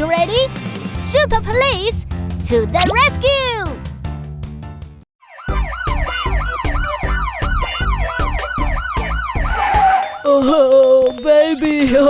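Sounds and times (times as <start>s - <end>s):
cartoon police siren yelp: 5.2s - 10.4s
heavy thumping beat: 5.5s - 12.0s.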